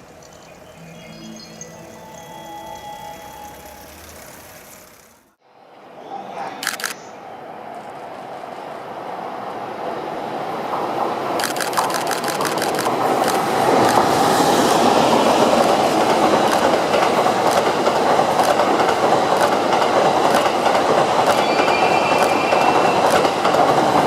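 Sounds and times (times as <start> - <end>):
train coaches rolling past: 0.0 - 24.0
wheels clicking over rail joints: 1.8 - 5.4, 14.8 - 24.0.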